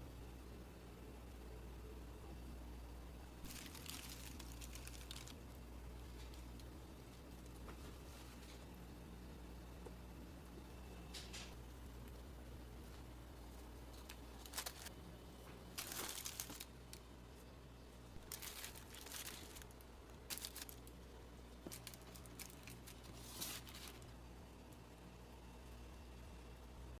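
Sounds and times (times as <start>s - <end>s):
low steady hum: 0.0s - 27.0s
crinkling and rustling: 3.4s - 8.7s, 12.9s - 17.5s, 18.2s - 24.2s.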